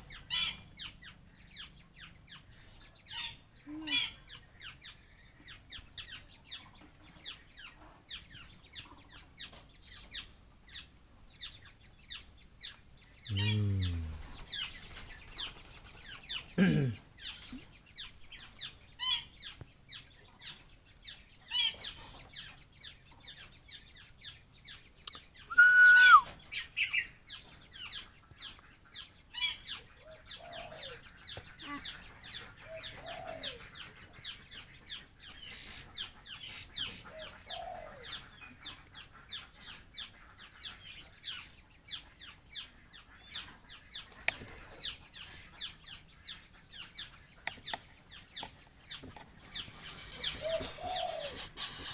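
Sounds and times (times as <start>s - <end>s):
birds chirping: 0.0s - 51.9s
soft low clucking calls: 13.3s - 14.5s
loud bird call: 25.5s - 26.4s, 49.6s - 51.9s.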